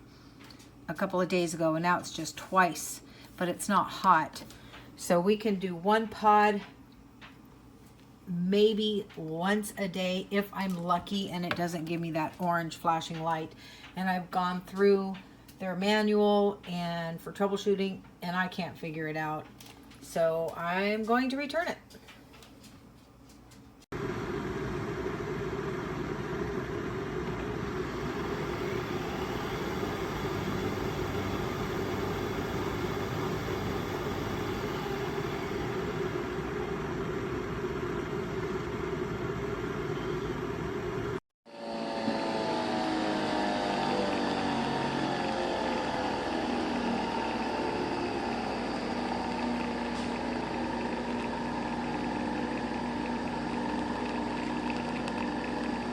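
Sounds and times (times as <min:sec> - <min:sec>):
coffee machine whirring: 0:24.0 - 0:55.9.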